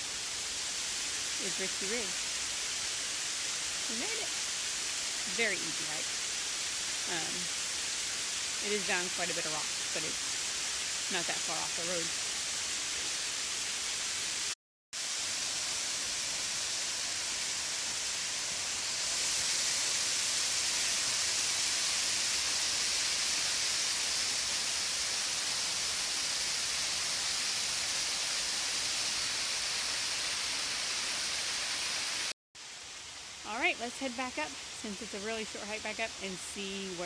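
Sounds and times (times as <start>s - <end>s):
waterfall rushing: 6.9s - 7.5s, 8.5s - 32.3s.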